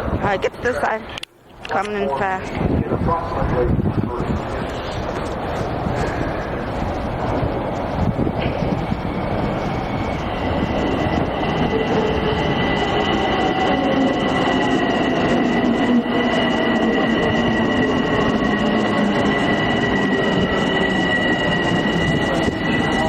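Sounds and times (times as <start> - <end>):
train wheels and brakes squealing: 8.2 - 23.0.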